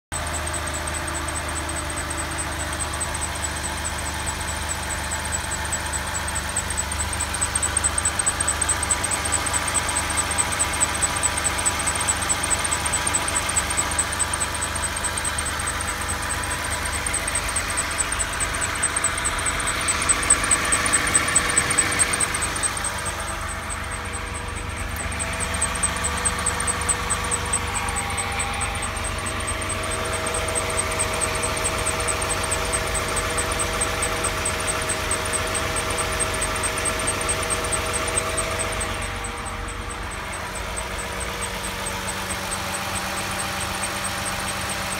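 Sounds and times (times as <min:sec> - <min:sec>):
car engine idling: 0:00.1 - 0:44.9
high-pitched belt squeak: 0:00.4 - 0:44.9.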